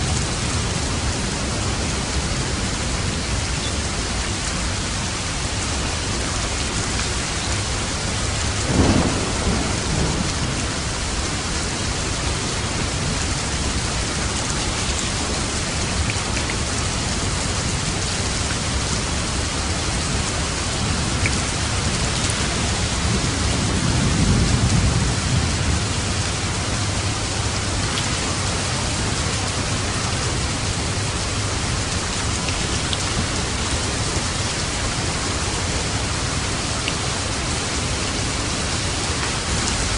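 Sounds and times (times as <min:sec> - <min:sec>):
steady rain falling: 0:00.0 - 0:39.9
low rumble of thunder: 0:07.6 - 0:16.0, 0:16.7 - 0:36.6
thunder clap: 0:08.7 - 0:10.8.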